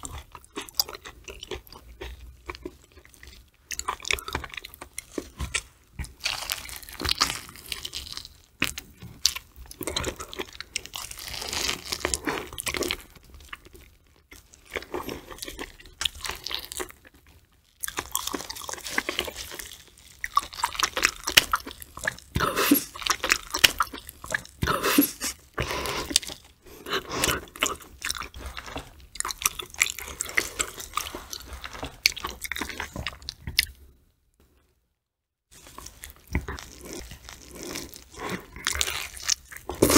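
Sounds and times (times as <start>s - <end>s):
wet chewing and biting: 17.8s - 33.8s, 35.6s - 39.9s.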